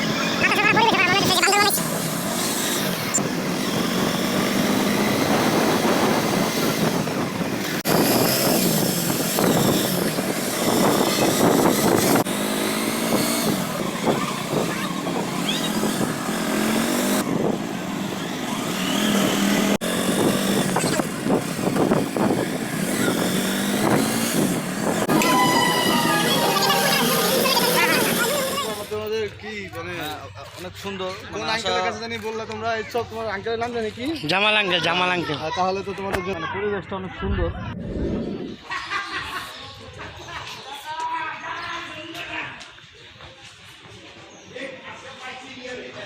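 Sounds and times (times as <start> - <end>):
motorcycle engine: 0.0 - 29.0
road traffic noise: 0.0 - 29.4.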